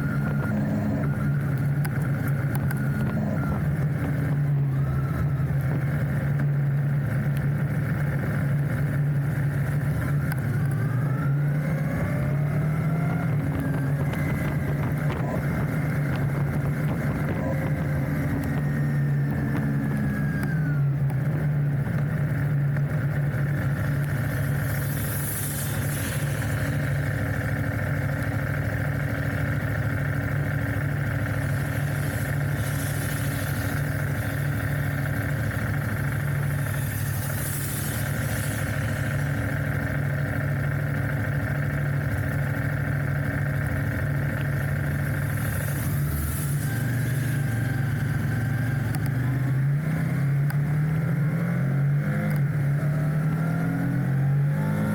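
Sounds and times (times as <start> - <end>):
motorcycle engine cruising: 0.0 - 54.9
rushes of hiss: 24.0 - 27.1, 31.4 - 39.7, 45.1 - 47.7.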